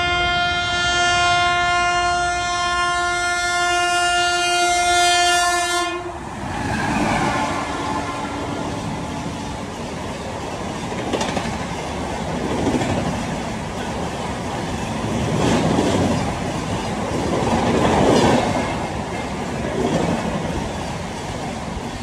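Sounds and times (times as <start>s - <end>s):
train running on rails: 0.0s - 22.0s.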